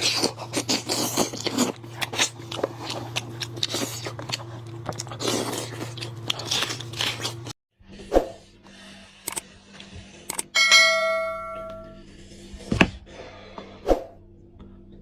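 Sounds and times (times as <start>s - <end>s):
person biting and chewing meat: 0.0s - 7.6s
steady low hum: 0.0s - 15.0s.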